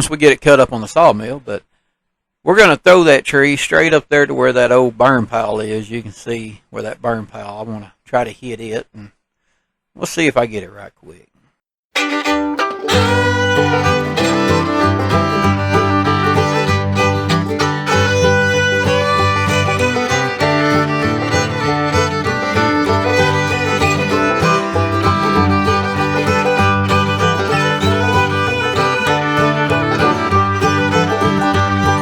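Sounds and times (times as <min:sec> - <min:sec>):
bluegrass fiddle and guitar music: 0:12.0 - 0:32.0.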